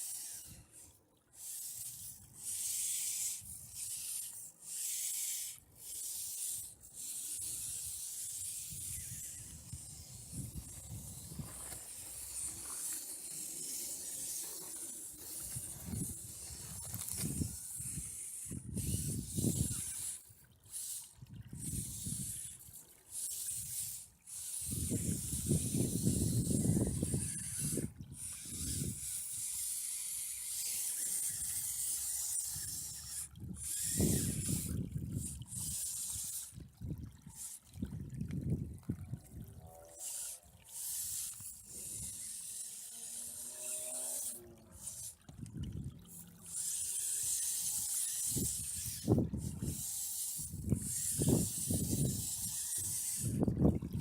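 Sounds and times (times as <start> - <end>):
running water hissing: 0.0 - 36.6, 39.6 - 53.5
wind buffeting microphone: 8.7 - 12.7, 15.4 - 19.9, 24.6 - 29.1, 36.6 - 39.7, 45.3 - 46.1, 48.3 - 49.8, 50.4 - 54.0.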